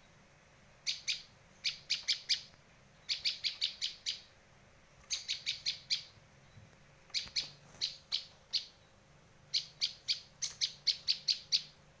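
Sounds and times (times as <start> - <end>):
bird sharp dry chip calls: 0.8 - 2.5, 3.1 - 4.3, 5.1 - 6.2, 7.1 - 8.8, 9.5 - 11.8.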